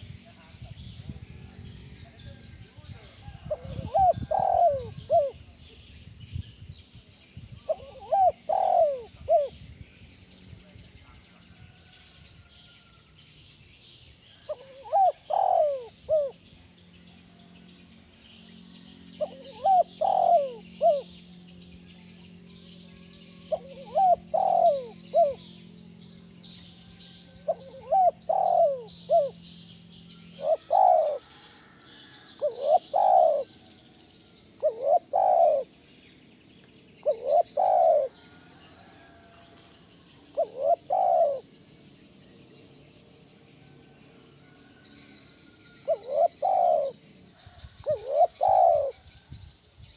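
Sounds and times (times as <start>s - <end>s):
low steady hum: 0.0s - 49.9s
dove cooing: 3.2s - 5.4s, 7.7s - 9.6s, 14.4s - 16.4s, 19.2s - 21.2s, 23.0s - 25.5s, 27.0s - 29.6s, 30.2s - 33.7s, 34.6s - 35.8s, 37.0s - 38.3s, 40.3s - 41.6s, 45.8s - 49.0s
insects buzzing: 7.2s - 49.6s.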